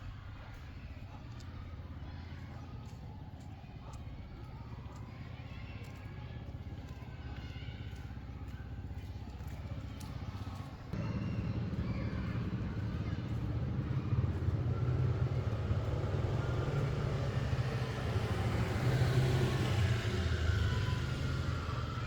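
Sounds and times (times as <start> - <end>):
vehicle engine pulsing rumble: 7.2 - 22.0.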